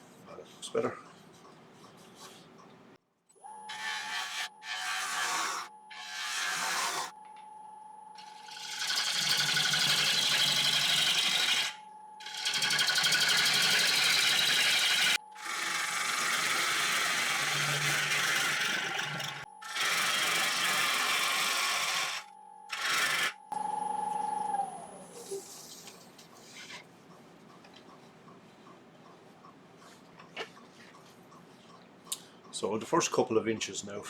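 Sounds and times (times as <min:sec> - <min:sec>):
wood lathe motor whine: 0:03.6 - 0:07.2, 0:08.2 - 0:25.3
gouge scraping spinning wood: 0:03.7 - 0:07.2, 0:08.2 - 0:23.4.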